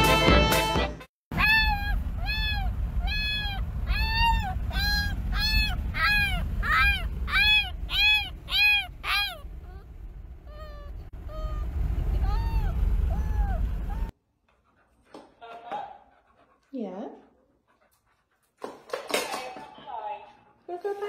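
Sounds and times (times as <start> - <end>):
road rumble inside car: 1.3 - 14.1
puppy whining howls: 1.4 - 9.9, 10.5 - 14.1.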